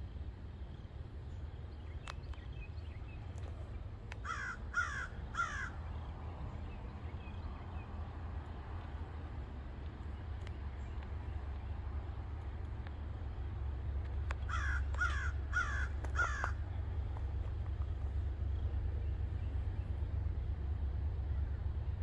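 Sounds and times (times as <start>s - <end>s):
steady low rumble: 0.0s - 22.0s
bird harsh calls: 4.2s - 6.1s, 14.4s - 16.8s.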